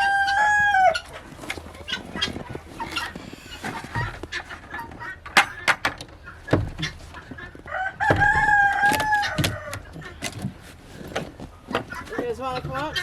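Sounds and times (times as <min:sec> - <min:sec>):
rooster crowing: 0:00.0 - 0:01.1, 0:07.6 - 0:10.0
chickens clucking: 0:00.0 - 0:13.0.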